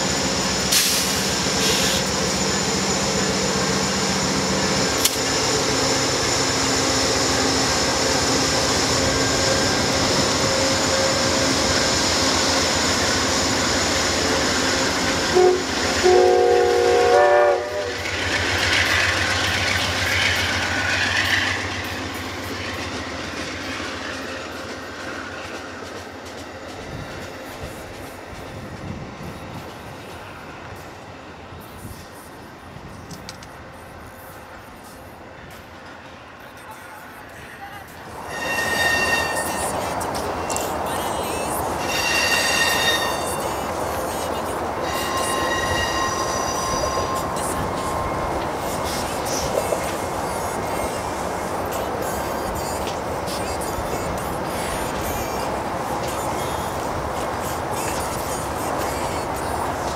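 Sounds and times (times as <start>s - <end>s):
diesel locomotive running: 0.0s - 59.9s
rolling train cars: 0.0s - 59.9s
train air horn blasts: 15.2s - 18.0s, 38.2s - 39.8s, 41.8s - 43.4s, 44.8s - 47.2s.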